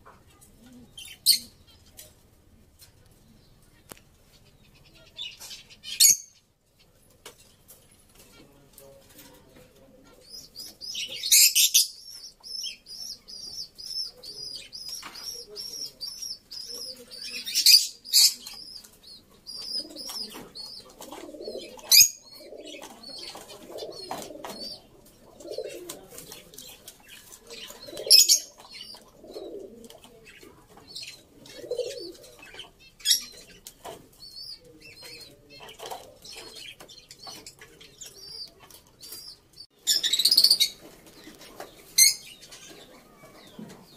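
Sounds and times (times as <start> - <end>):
bird cooing: 0.3 - 1.8, 9.6 - 33.6
high bird chirps: 34.2 - 40.8.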